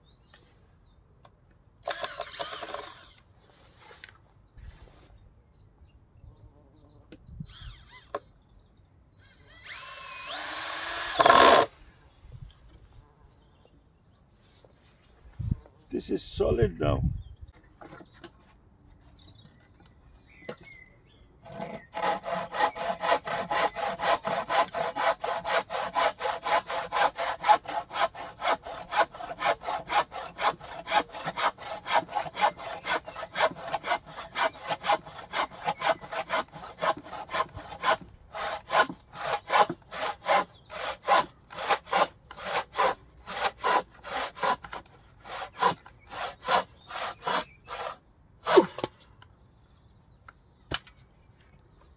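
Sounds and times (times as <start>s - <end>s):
hand saw cutting wood: 1.9s - 3.2s, 9.7s - 11.7s, 21.4s - 49.0s.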